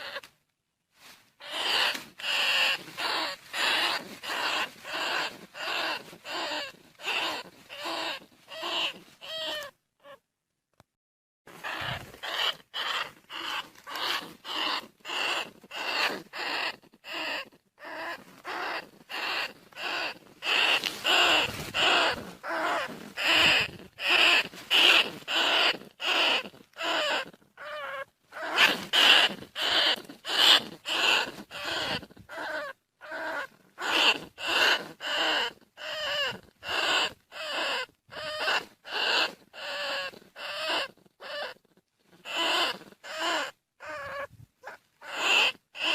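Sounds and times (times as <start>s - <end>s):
rat squeaking calls: 0.0s - 0.3s, 1.4s - 10.2s, 11.6s - 45.9s.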